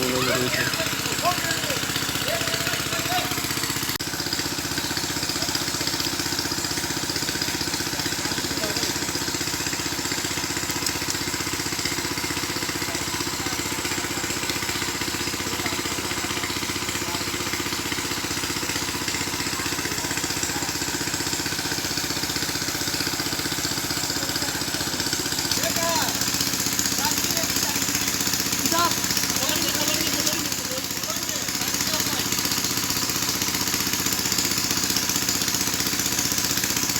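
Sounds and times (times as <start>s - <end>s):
small engine running: 0.0s - 36.9s.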